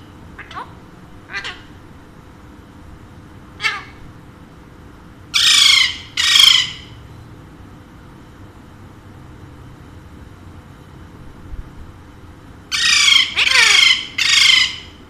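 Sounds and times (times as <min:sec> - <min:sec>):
parakeet squawking: 0:00.4 - 0:01.8, 0:03.6 - 0:04.1, 0:05.4 - 0:07.0, 0:12.7 - 0:15.0.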